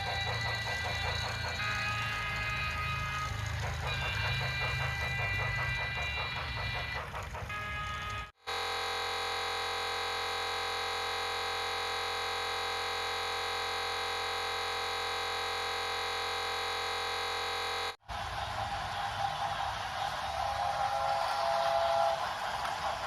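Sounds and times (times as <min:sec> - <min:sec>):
steady buzzing tone: 0:03.9 - 0:18.0.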